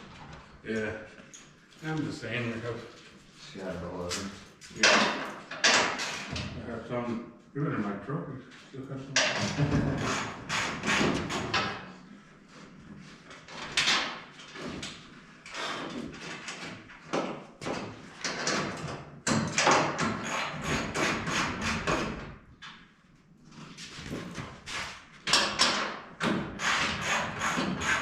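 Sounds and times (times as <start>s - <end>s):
tools and parts clattering: 4.2s - 6.6s.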